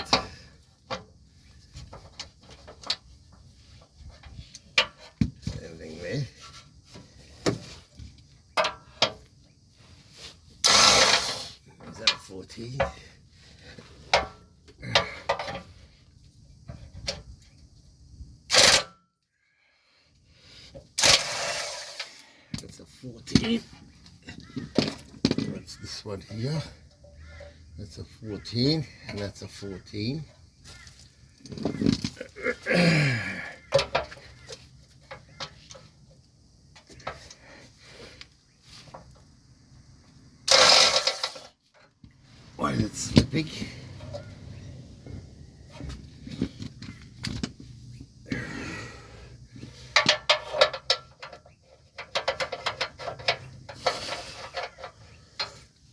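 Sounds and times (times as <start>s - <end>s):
harsh burst of wrench slipping: 10.6s - 11.6s, 21.0s - 22.3s, 40.5s - 41.5s.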